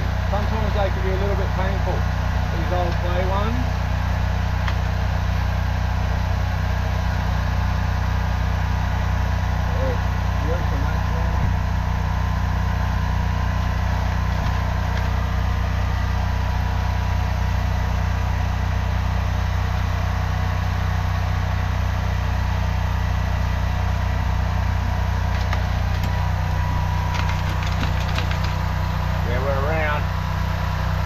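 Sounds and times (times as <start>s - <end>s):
engine running with thin whine: 0.0s - 31.0s.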